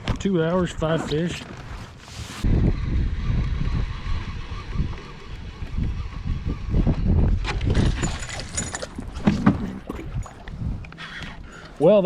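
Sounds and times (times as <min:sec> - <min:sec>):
fish thrashing and splashing: 0:07.4 - 0:10.4.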